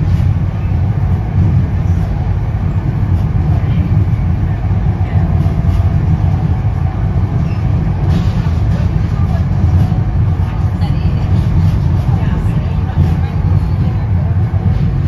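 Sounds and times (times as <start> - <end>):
train coach rumbling on rails: 0.0 - 15.0.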